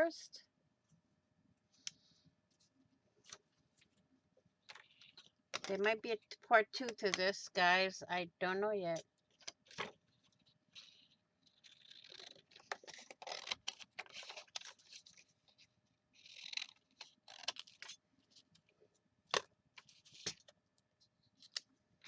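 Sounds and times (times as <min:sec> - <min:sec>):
paper rustling and scraping: 0:09.3 - 0:18.5.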